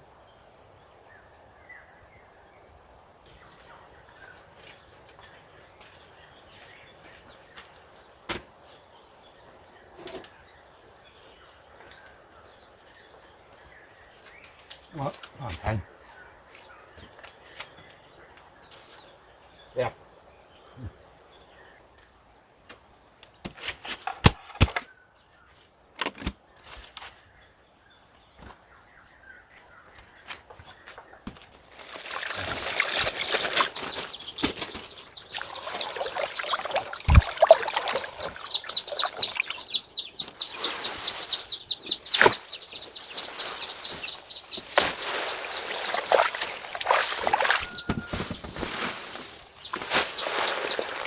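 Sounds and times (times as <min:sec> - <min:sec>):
rustling and flapping: 0:31.4 - 0:51.0.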